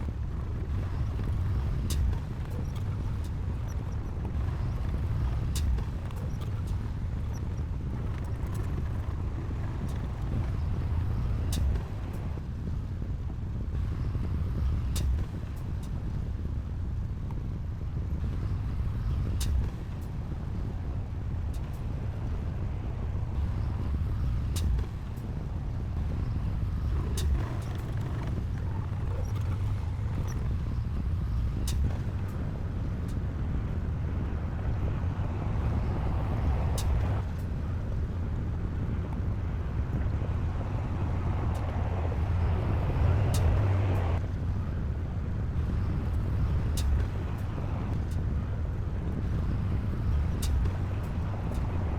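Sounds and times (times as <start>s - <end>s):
diesel machinery rumbling: 18.6s - 51.9s.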